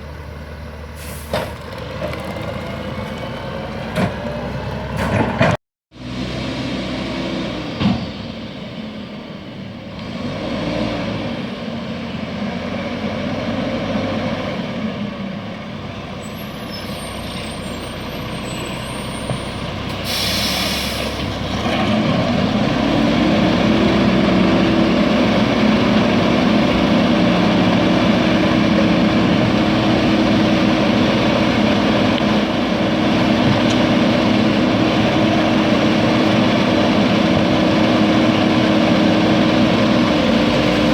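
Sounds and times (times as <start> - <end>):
air brakes hissing: 1.0 - 1.6, 16.3 - 21.4
garbage truck engine running: 17.7 - 40.9.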